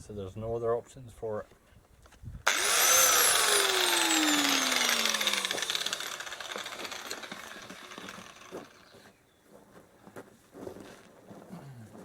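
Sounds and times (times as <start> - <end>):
power tool motor winding down: 2.5 - 9.0.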